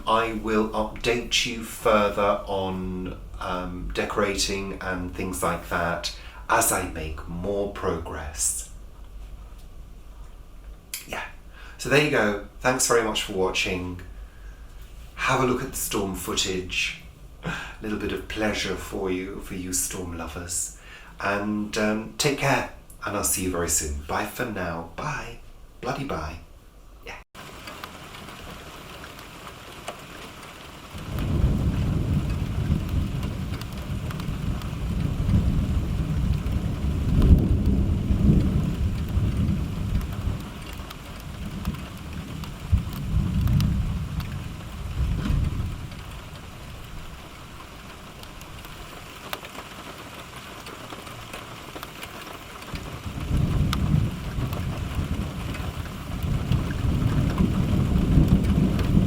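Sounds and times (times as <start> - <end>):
steady rain falling: 0.0 - 59.0
thunder rolling: 11.2 - 21.0, 30.9 - 49.3, 52.6 - 59.0.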